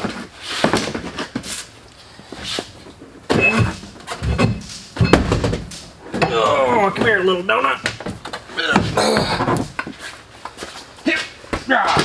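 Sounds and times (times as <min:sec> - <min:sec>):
scraping rustling and knocking: 0:00.0 - 0:12.0
short squeak: 0:03.3 - 0:03.8
dull thump: 0:03.3 - 0:06.4.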